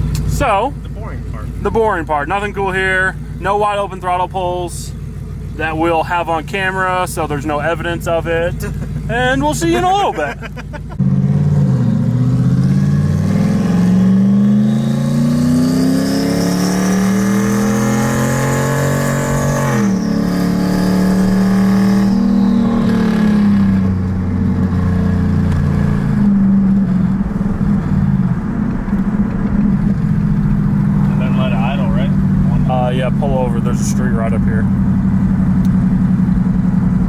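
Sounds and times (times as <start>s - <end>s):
car engine revving: 0.0s - 37.0s
turbo whine: 9.8s - 37.0s.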